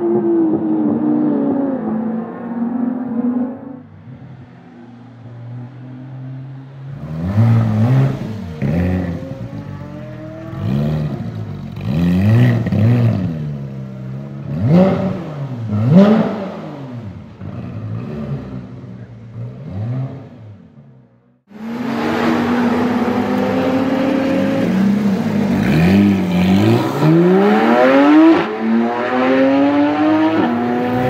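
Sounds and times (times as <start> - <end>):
engine free revs: 21.5 - 31.0.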